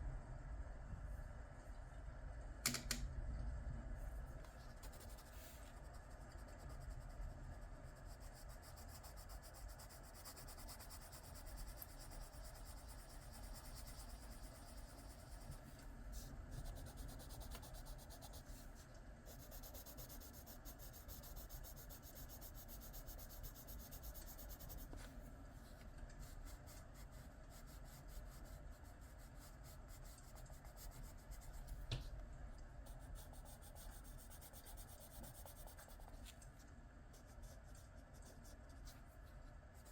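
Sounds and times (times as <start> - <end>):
pencil scratching on paper: 16.2 - 25.1, 26.2 - 31.8, 32.9 - 36.3, 37.1 - 39.9.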